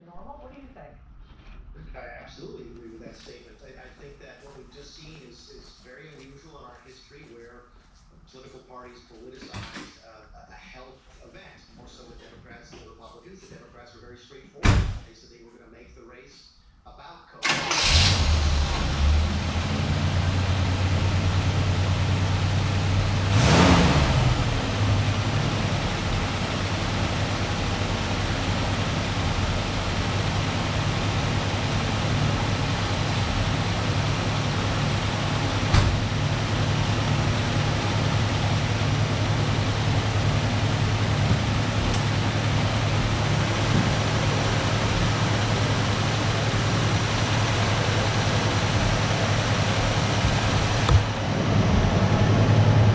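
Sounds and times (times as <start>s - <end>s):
car engine idling: 17.4s - 52.9s.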